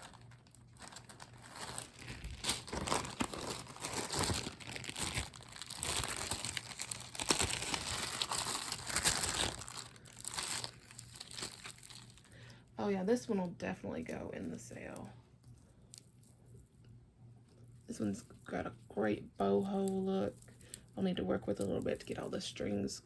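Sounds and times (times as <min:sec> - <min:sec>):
plastic bags crinkling: 0:00.0 - 0:12.4.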